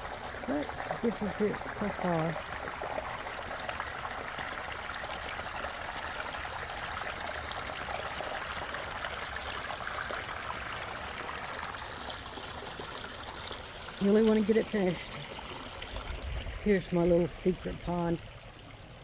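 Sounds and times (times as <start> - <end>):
water splashing over waterfall: 0.0 - 12.3.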